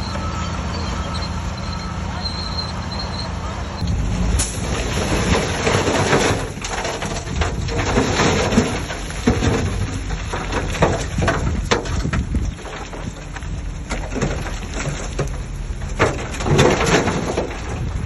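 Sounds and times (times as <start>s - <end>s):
bulldozer engine rumble: 0.0s - 18.0s
earth and stones crunching: 3.8s - 18.0s.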